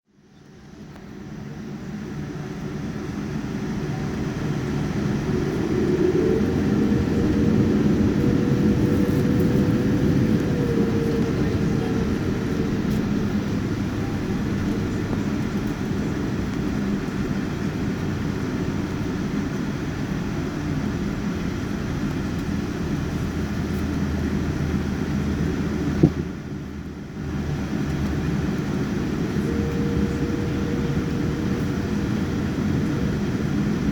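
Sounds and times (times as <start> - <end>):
jet engines spooling up in cabin: 0.3 - 33.9.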